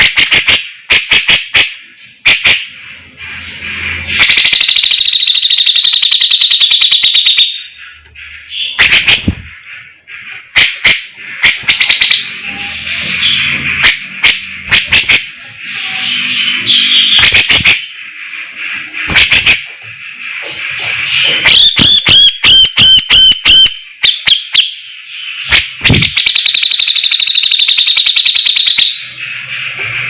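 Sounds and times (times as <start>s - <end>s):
bird singing: 1.8s - 29.8s.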